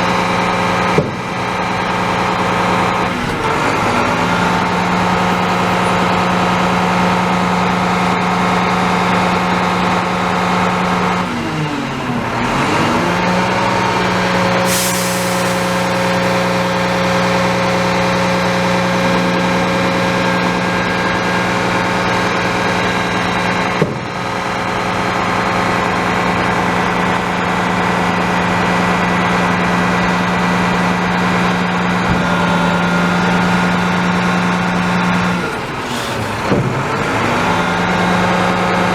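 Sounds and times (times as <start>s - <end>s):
diesel truck engine running: 0.0s - 38.9s
air hiss: 14.6s - 16.8s.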